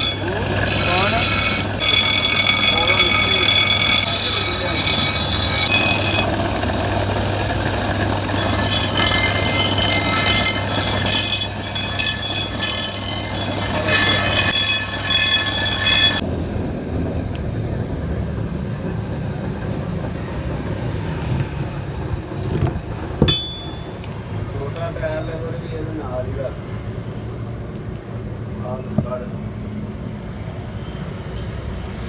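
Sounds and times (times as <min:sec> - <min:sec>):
high metallic screech: 0:00.0 - 0:16.2.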